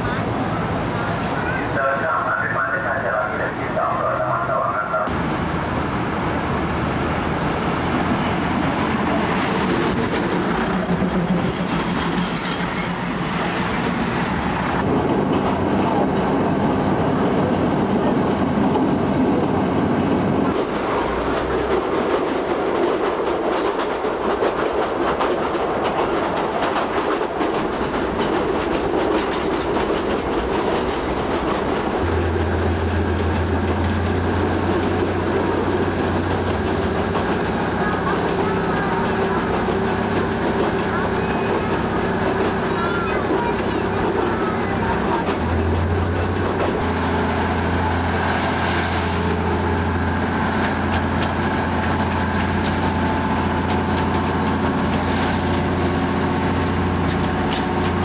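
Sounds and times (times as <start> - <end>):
clickety-clack of wheels over rail joints: 0.0 - 58.0
train rumbling on track: 0.0 - 58.0
high squeal: 7.6 - 14.8.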